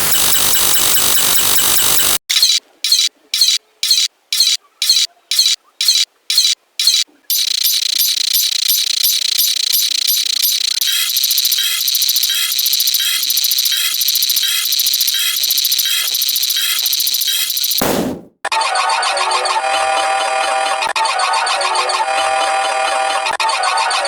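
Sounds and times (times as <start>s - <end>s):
rapid mechanical clicking: 0.0s - 17.8s.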